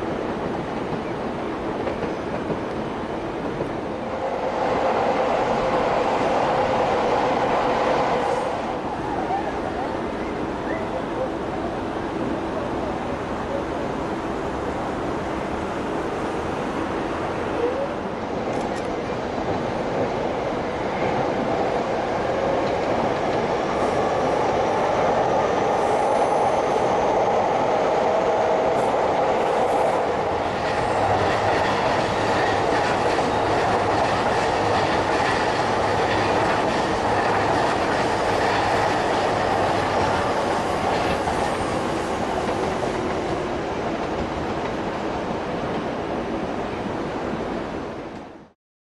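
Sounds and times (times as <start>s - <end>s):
electric train passing: 0.0s - 48.2s
wheels clacking over rail joints: 30.2s - 43.3s.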